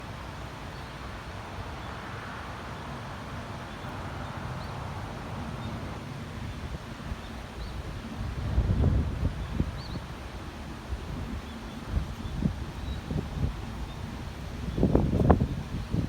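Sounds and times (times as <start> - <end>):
wind buffeting microphone: 4.6 - 16.0.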